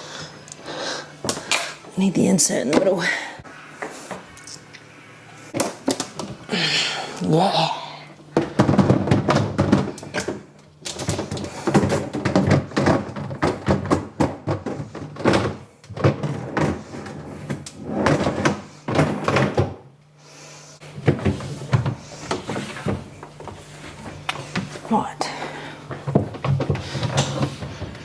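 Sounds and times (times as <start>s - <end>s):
plastic fridge shelves clattering: 5.5s - 6.5s, 8.3s - 19.9s, 20.8s - 28.0s.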